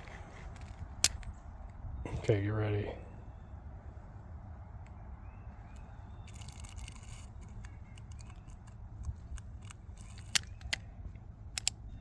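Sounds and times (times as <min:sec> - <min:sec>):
wind rumble on microphone: 0:00.0 - 0:12.0
small clicks: 0:05.8 - 0:11.8.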